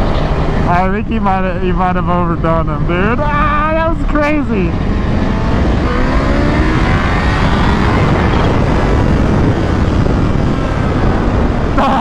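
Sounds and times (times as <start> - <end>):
wind rush on microphone: 2.2 - 12.0
motorcycle engine accelerating: 3.9 - 12.0.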